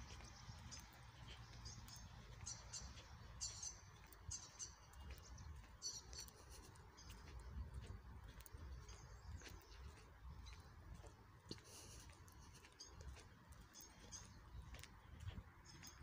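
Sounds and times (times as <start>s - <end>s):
faint small bird chirps: 0.0s - 10.8s.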